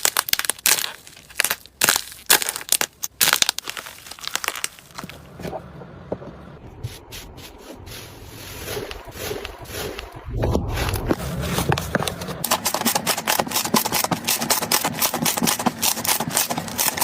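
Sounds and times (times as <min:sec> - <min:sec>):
slime squishing: 0:07.8 - 0:17.0.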